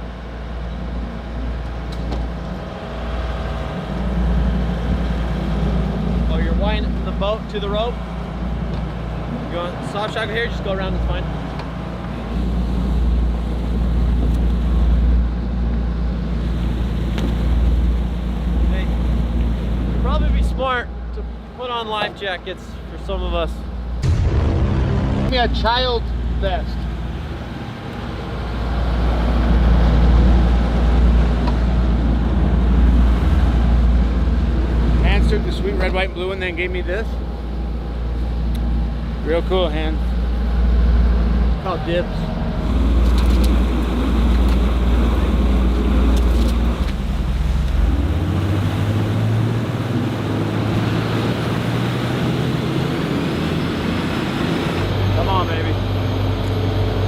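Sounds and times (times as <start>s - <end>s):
boat engine rumble: 0.0s - 57.0s
rushing water: 40.1s - 57.0s.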